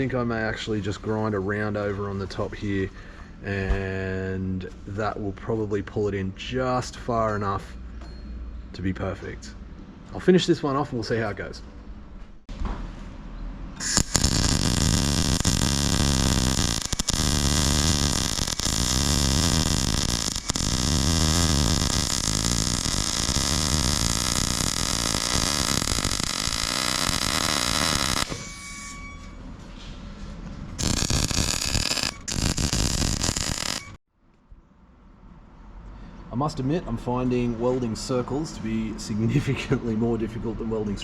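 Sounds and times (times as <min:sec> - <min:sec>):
welder arc crackling: 0:13.8 - 0:28.5, 0:30.8 - 0:34.0.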